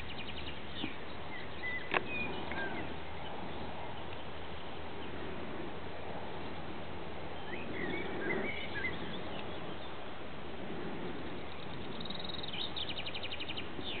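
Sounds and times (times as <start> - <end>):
small birds chirping: 0.0 - 14.0
bird trill: 7.4 - 9.9, 11.5 - 14.0.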